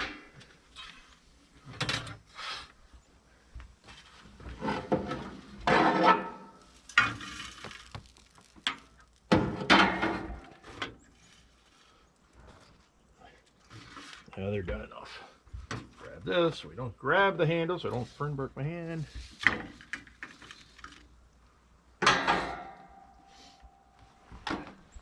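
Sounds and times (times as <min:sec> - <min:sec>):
utensil scraping cast iron: 0:03.8 - 0:12.0.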